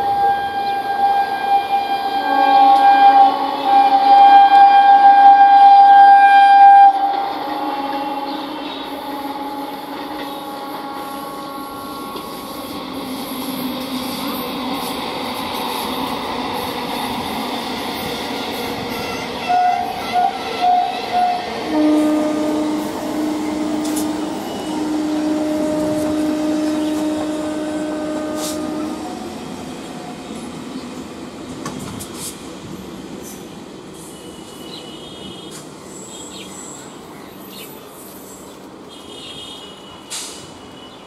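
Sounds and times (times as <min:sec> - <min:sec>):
train horn toots and blast: 0:00.0 - 0:12.8, 0:18.0 - 0:29.2, 0:34.0 - 0:35.7, 0:38.8 - 0:41.0
electric train running past: 0:00.0 - 0:41.0.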